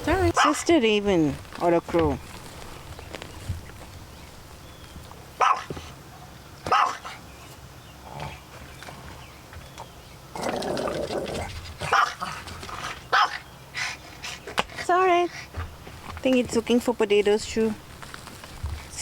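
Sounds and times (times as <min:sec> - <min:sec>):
dog barking: 0:00.4 - 0:00.7, 0:05.4 - 0:05.8, 0:06.6 - 0:07.2, 0:11.8 - 0:12.3, 0:13.1 - 0:13.4.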